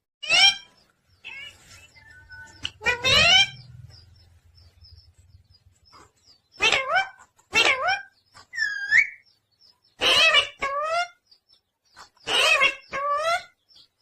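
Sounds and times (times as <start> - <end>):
parrot harsh calls: 0.2 - 1.6, 2.8 - 3.7, 6.6 - 9.2, 10.0 - 11.2, 12.2 - 13.5.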